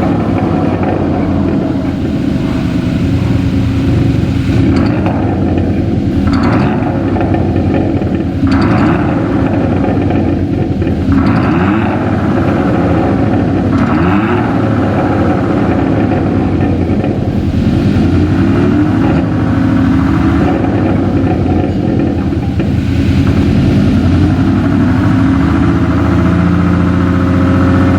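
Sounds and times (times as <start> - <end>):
car exhaust revving over idle: 0.0 - 27.9.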